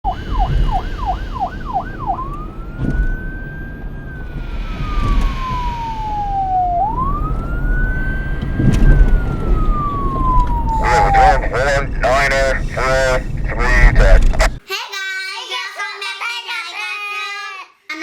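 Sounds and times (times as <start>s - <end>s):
electronic police siren: 0.0s - 14.2s.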